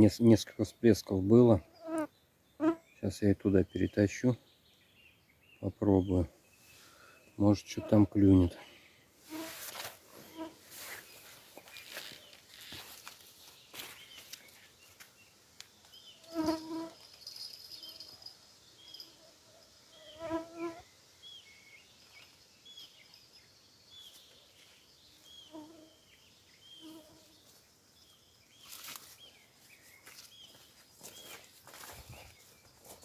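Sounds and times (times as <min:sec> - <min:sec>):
insects buzzing and chirping: 0:01.6 - 0:05.6, 0:06.4 - 0:33.0.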